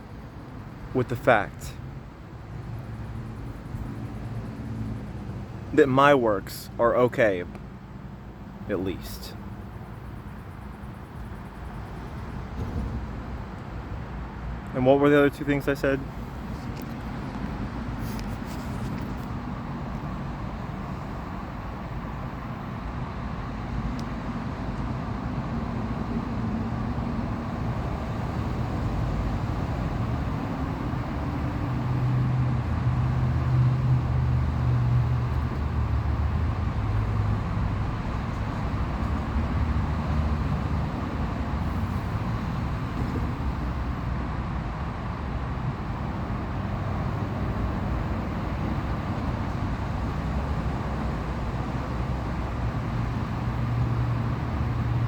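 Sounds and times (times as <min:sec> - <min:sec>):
road traffic rumble: 0:00.0 - 0:55.0
louder vehicle passing: 0:16.1 - 0:55.0.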